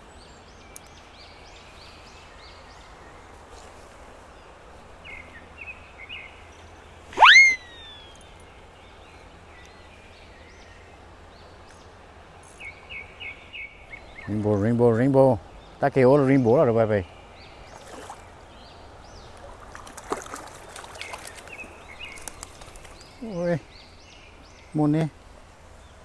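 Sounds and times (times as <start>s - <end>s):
small birds chirping: 0.0s - 26.0s
steady outdoor hiss: 0.0s - 26.0s
sharp rising whistle: 7.2s - 8.0s.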